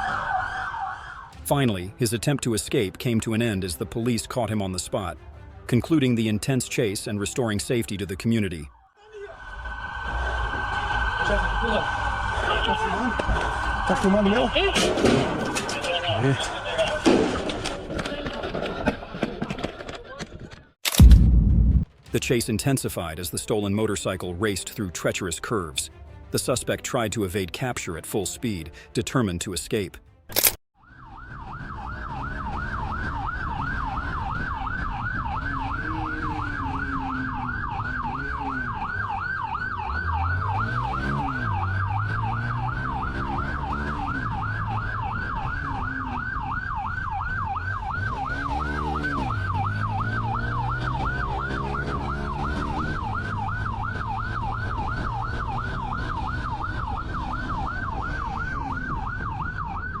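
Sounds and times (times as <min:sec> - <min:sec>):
police siren yelping: 0:00.0 - 0:01.4, 0:08.4 - 0:17.0, 0:30.8 - 1:00.0
vehicle engine revving: 0:34.9 - 0:59.5.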